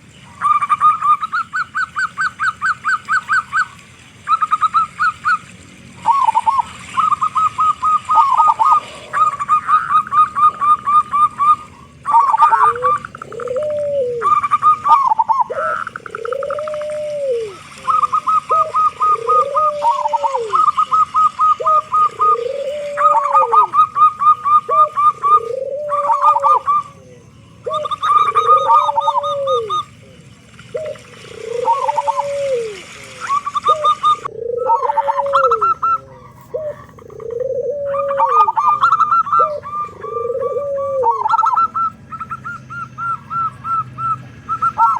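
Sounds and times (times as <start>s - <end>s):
dove cooing: 0.0s - 44.9s
stuttering higher bird notes: 0.0s - 44.9s.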